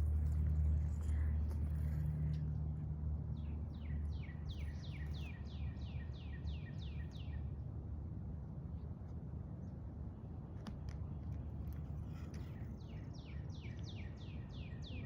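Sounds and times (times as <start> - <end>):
steady low rumble: 0.0 - 3.9.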